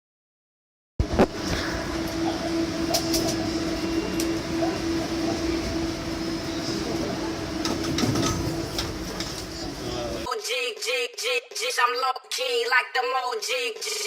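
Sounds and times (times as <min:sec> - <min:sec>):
train rumbling: 0:01.0 - 0:10.3
constant low tone: 0:01.1 - 0:10.3.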